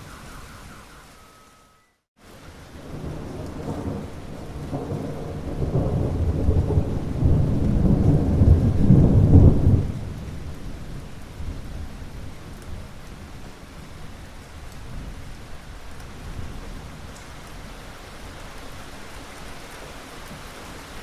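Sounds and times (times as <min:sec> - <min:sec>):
steady rain: 0:00.0 - 0:21.0
rolling thunder rumble: 0:02.6 - 0:14.1.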